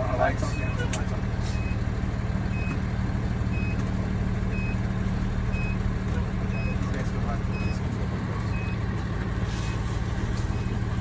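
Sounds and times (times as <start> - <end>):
diesel engine droning: 0.0 - 11.0
reversing alarm beeping: 3.5 - 3.8, 4.5 - 4.8, 5.5 - 5.8, 7.4 - 7.8.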